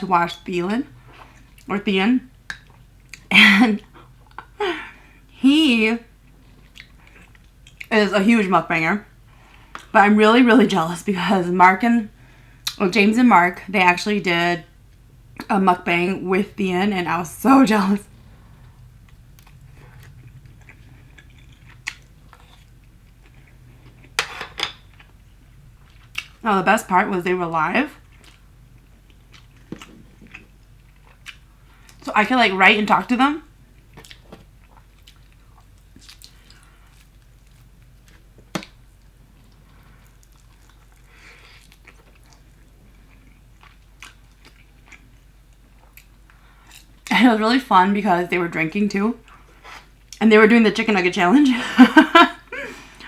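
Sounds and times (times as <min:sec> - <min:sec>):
person chewing crispy chicken: 0:19.1 - 0:24.2, 0:28.0 - 0:32.0, 0:33.8 - 0:38.4, 0:39.4 - 0:47.0.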